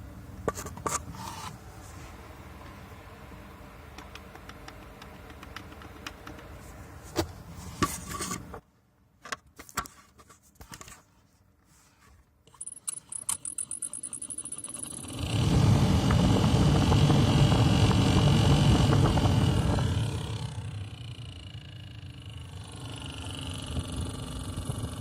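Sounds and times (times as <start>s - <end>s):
low steady hiss: 0.0s - 13.7s
blower motor squeaking: 13.6s - 25.0s.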